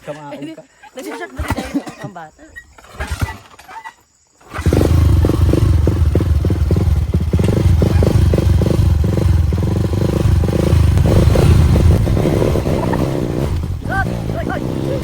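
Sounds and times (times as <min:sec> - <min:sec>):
motorcycle engine rumbling: 0:04.5 - 0:15.0.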